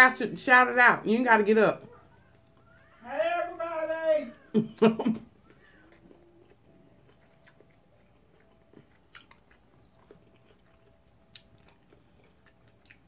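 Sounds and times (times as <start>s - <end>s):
faint chewing: 5.1s - 13.0s.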